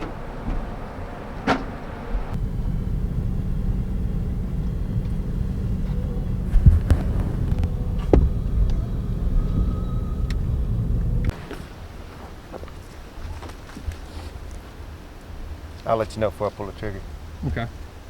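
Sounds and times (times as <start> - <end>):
sharp knocks: 0.0 - 2.4
vehicle engine running: 0.0 - 11.6.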